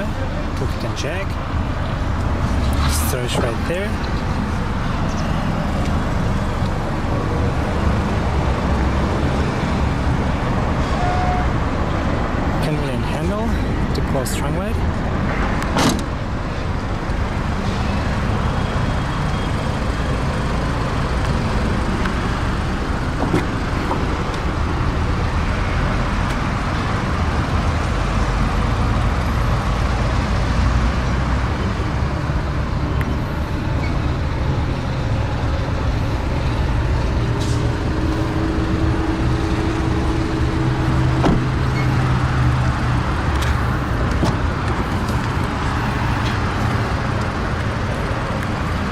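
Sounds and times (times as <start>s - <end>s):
road traffic rumble: 0.0s - 48.9s
car trunk lid shutting: 15.7s - 16.1s, 41.2s - 41.9s.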